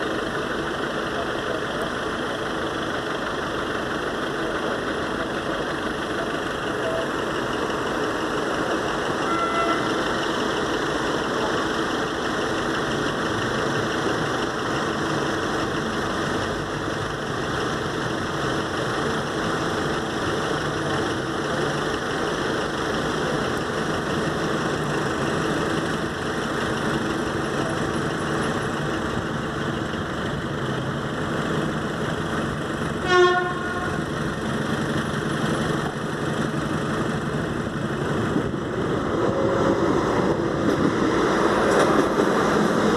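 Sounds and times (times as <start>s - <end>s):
train wheels rumbling on rail: 0.0s - 42.9s
train horn toot: 9.2s - 10.0s, 33.0s - 34.1s.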